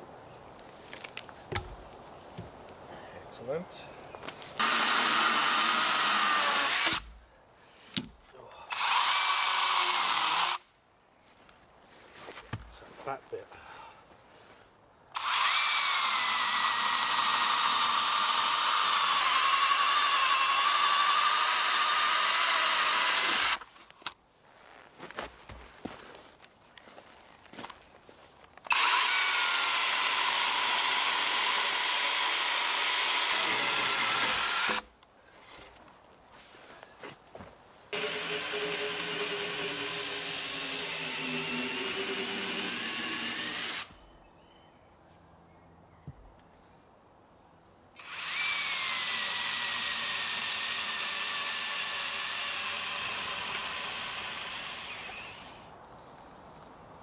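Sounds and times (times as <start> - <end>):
electric chainsaw cutting log: 4.6 - 7.1, 8.7 - 10.7, 15.2 - 23.7, 28.7 - 34.9, 37.9 - 43.9, 48.0 - 55.7.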